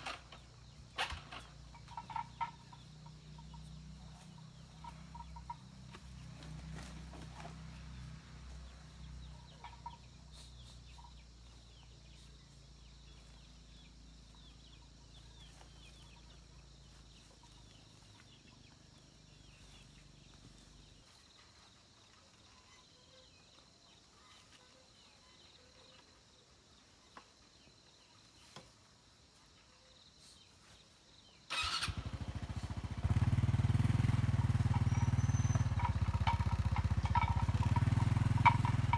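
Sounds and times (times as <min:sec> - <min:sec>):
small engine running loudly: 0:00.0 - 0:09.8, 0:31.5 - 0:38.9
low engine hum: 0:00.1 - 0:21.0, 0:31.8 - 0:38.9
faint chicken peeps: 0:00.7 - 0:31.5.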